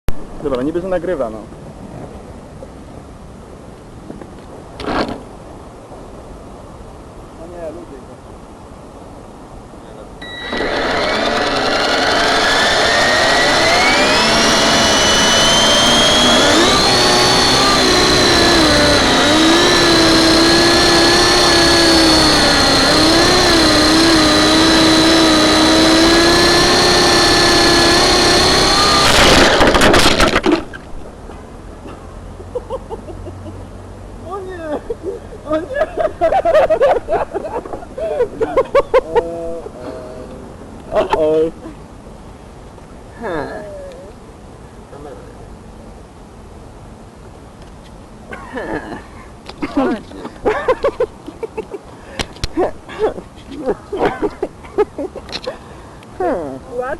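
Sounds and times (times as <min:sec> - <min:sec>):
model helicopter motor whine: 0:10.2 - 0:30.6
rotor hum: 0:10.2 - 0:31.2.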